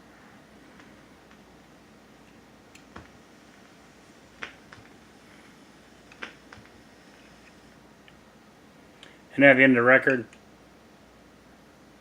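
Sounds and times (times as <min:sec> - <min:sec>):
record surface hiss: 0:00.0 - 0:12.0
record clicks and pops: 0:02.7 - 0:03.2, 0:04.3 - 0:05.0, 0:06.1 - 0:08.2.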